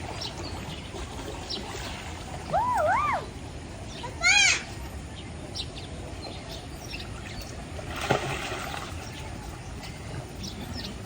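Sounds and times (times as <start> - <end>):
water splashing: 0.0 - 3.8, 7.0 - 11.0.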